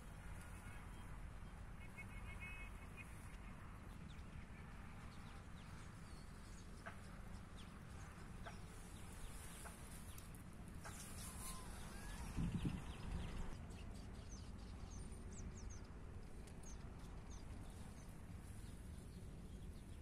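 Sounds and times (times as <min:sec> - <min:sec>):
faint bird calls: 0:10.8 - 0:13.3.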